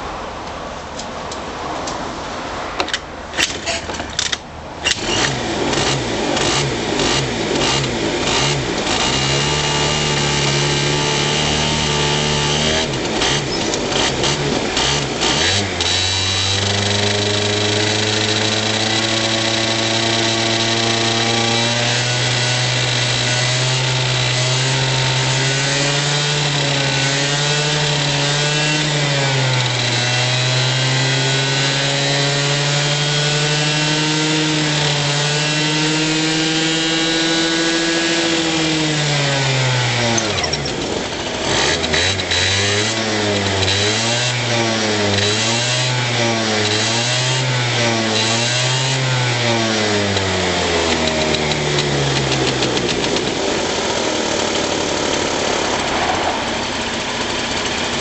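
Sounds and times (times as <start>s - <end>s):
scooter engine running: 4.8s - 58.0s
engine throttle blips: 50.0s - 58.0s.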